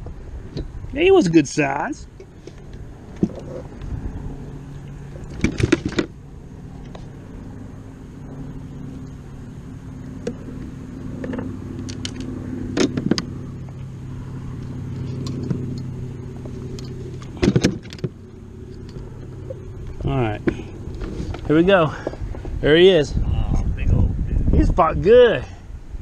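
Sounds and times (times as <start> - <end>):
motor humming: 2.1 - 22.6.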